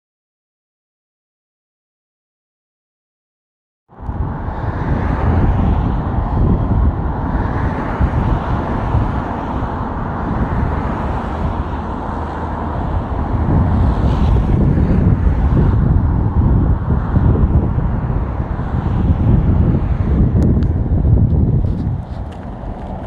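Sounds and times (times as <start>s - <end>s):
wind buffeting microphone: 3.9s - 23.0s.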